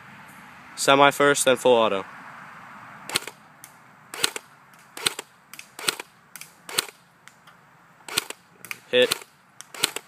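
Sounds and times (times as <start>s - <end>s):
airsoft rifle shots: 3.1s - 3.4s, 4.1s - 7.0s, 8.1s - 10.0s.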